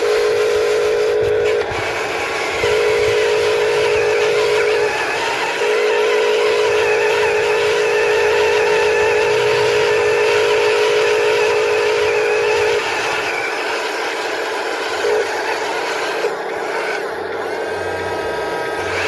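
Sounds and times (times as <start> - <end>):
high electric motor whine: 0.0 - 19.0.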